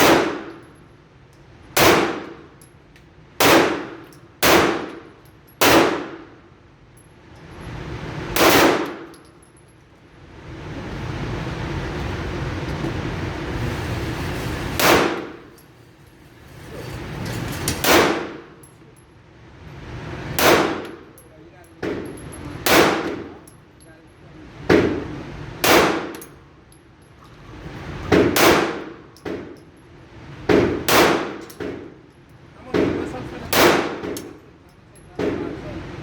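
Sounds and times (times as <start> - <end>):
pistol shots: 0.0 - 0.6, 1.8 - 2.4, 3.4 - 6.3, 8.4 - 9.1, 14.8 - 15.4, 17.8 - 18.5, 20.4 - 21.0, 22.6 - 23.3, 25.6 - 26.2, 28.1 - 29.5, 30.5 - 31.9, 32.7 - 34.4
steady background noise: 0.0 - 36.0.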